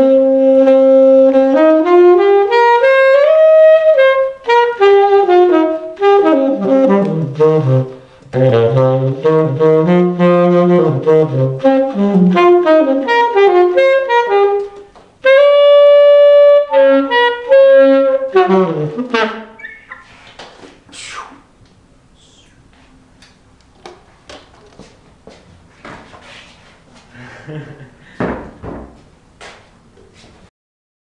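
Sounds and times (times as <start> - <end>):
saxophone playing jazzy melody: 0.0 - 20.2.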